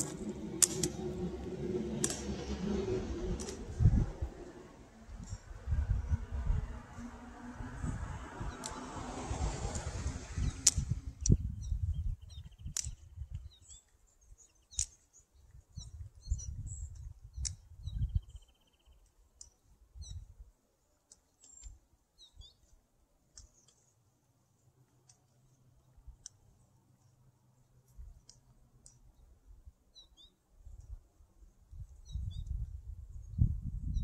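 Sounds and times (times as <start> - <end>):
sharp clicks: 0.0 - 1.2, 2.0 - 2.4, 9.7 - 11.4, 12.5 - 14.0, 14.7 - 15.1
low rumbling noise: 0.0 - 12.3
small birds chirping: 10.2 - 34.0.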